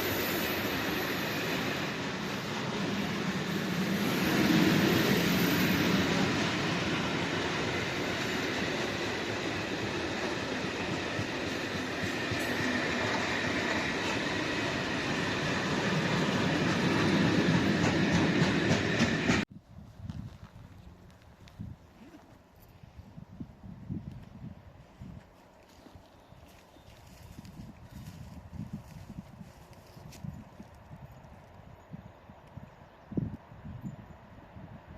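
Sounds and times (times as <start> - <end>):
rail clacks: 0.0 - 19.5.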